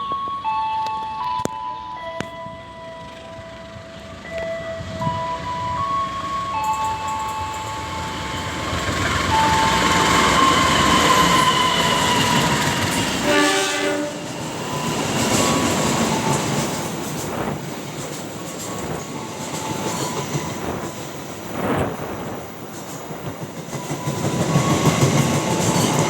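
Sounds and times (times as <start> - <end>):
train wheels rushing on rails: 6.2 - 26.0
locomotive horn blast: 8.0 - 14.3.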